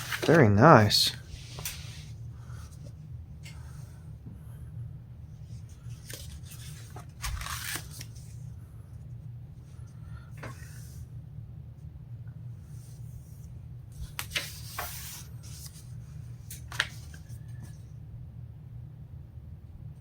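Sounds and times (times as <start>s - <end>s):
paper rustling and crinkling: 0.0s - 2.1s, 5.8s - 8.4s, 14.0s - 17.7s
steady low hum: 0.0s - 20.0s.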